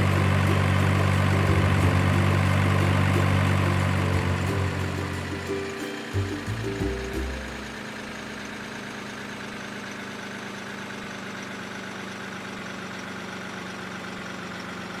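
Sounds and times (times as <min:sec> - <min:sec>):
steady mechanical hum: 0:00.0 - 0:08.8.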